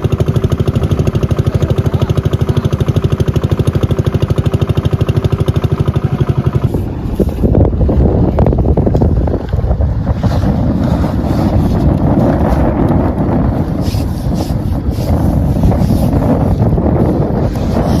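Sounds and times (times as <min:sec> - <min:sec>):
small engine chugging: 0:00.0 - 0:06.8
wind buffeting microphone: 0:00.0 - 0:18.0.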